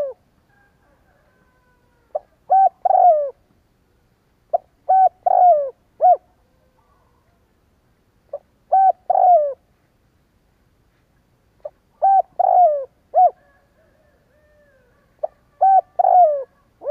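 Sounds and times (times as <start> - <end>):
dove cooing: 0.0 - 3.4, 4.5 - 7.3, 8.3 - 9.7, 11.6 - 16.9.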